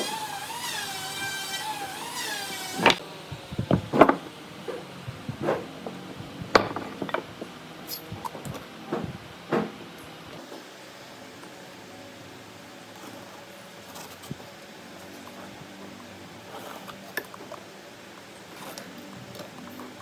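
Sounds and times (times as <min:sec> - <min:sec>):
power tool motor whine: 0:00.0 - 0:07.2
wooden pieces knocking: 0:02.6 - 0:09.8.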